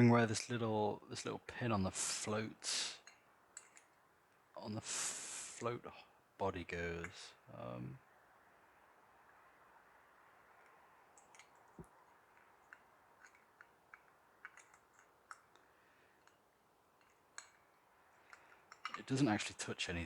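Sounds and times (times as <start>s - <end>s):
faint clicks of small parts: 3.0s - 4.7s, 10.6s - 19.9s.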